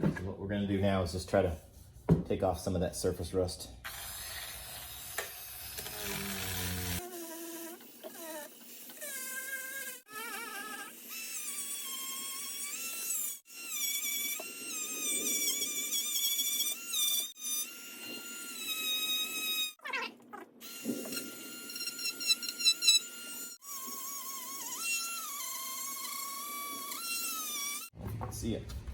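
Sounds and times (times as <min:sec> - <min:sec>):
rotary tool whining: 0:03.9 - 0:19.8, 0:20.6 - 0:28.0.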